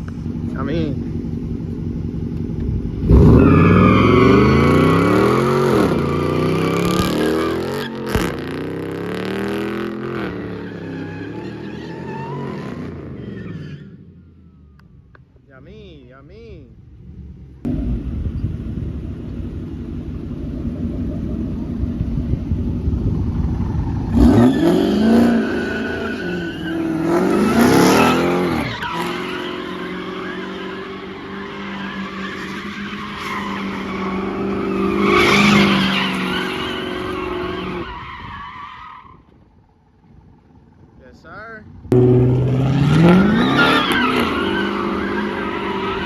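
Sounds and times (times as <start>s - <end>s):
car engine revving: 0.0s - 13.6s, 16.8s - 37.9s, 41.8s - 46.0s
tyres squealing: 24.2s - 39.1s, 43.0s - 46.0s.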